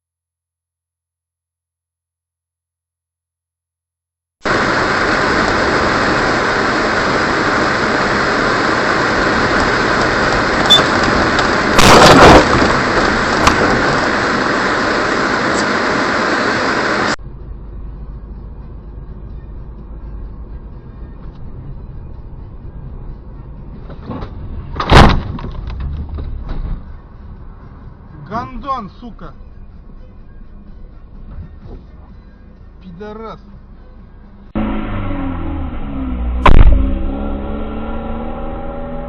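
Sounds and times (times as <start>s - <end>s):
road vehicle noise: 4.4s - 39.0s
loud collision impact: 11.8s - 13.8s, 36.4s - 37.4s.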